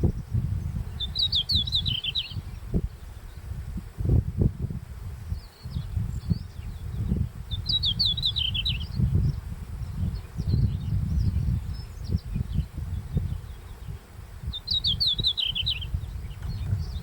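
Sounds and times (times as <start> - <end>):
low uneven rumble: 16.0 - 17.0.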